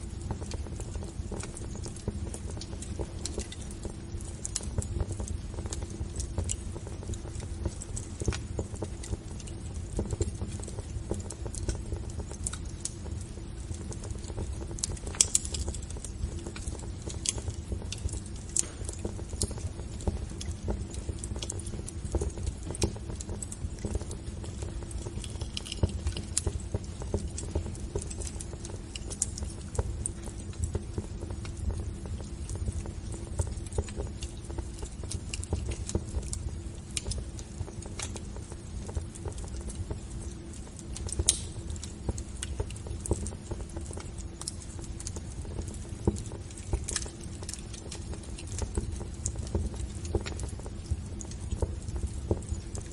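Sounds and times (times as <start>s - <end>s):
wood fire crackling and popping: 0.0s - 52.9s.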